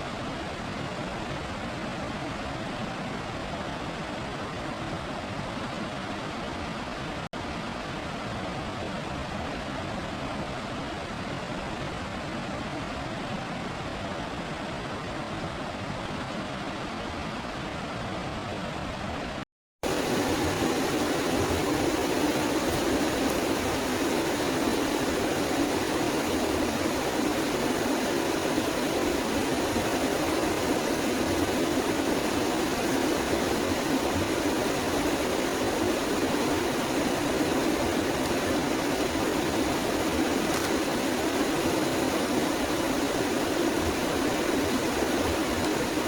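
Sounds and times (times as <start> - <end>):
forest ambience rushing noise: 19.8 - 46.0.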